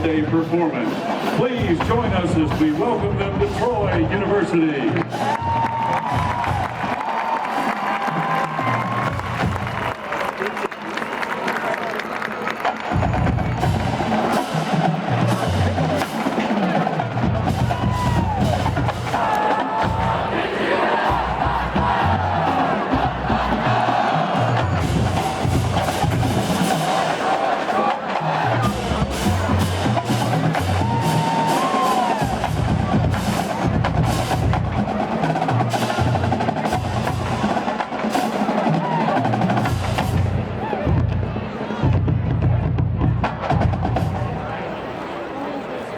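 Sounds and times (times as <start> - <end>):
low drums: 0.0 - 9.9, 12.9 - 44.7
marching drumline cadence: 0.0 - 45.9
deep low drum notes: 1.4 - 6.9, 17.0 - 20.4, 28.3 - 37.6.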